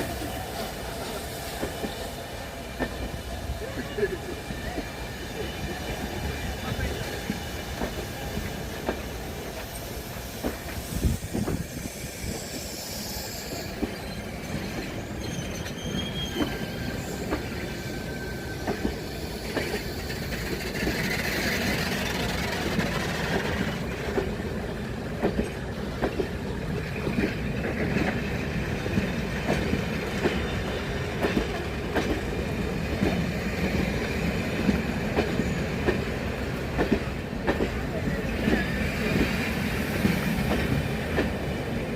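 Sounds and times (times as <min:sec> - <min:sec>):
train rumbling: 0:00.0 - 0:41.9
high-pitched wheel squeals: 0:11.7 - 0:18.7.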